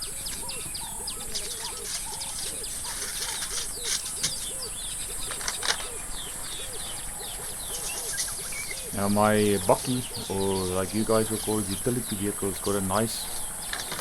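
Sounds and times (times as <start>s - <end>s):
birds chirping: 0.0s - 14.0s
crackling bursts: 1.4s - 6.5s.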